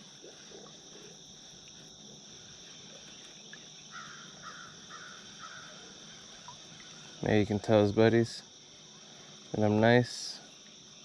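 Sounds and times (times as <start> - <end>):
insects chirping: 0.0 - 11.0
crow cawing: 3.9 - 5.8.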